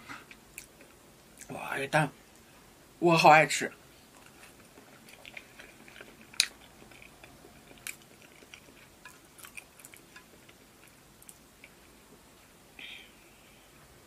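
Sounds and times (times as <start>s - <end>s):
person chewing wetly: 4.1s - 11.9s.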